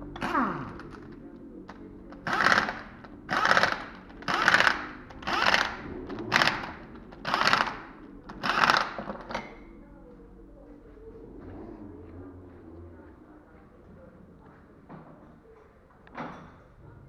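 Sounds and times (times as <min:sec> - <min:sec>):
ratchet wrench clicking: 0:02.2 - 0:09.1.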